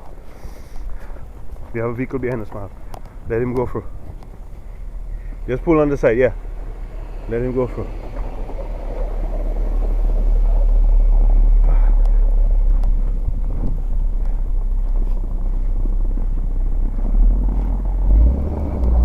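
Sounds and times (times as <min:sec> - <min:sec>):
car driving past on snow: 0:04.4 - 0:19.0.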